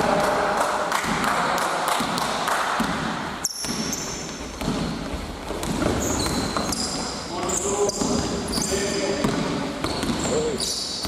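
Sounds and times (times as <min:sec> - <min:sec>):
murmur of large hall: 0:00.0 - 0:11.0
basketball bouncing on floor: 0:01.9 - 0:07.2, 0:07.9 - 0:10.8
sneaker squeaks: 0:03.4 - 0:11.0.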